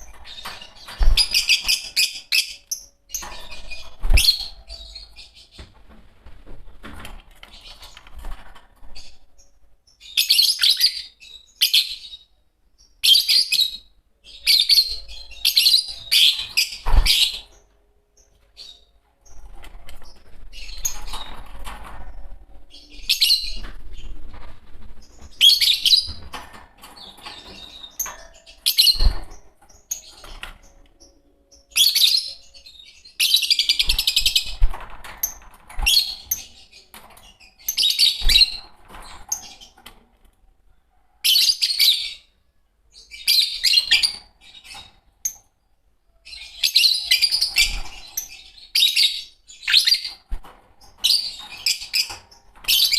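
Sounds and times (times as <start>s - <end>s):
lovebirds chirping shrilly: 0.0s - 5.6s, 35.2s - 39.8s.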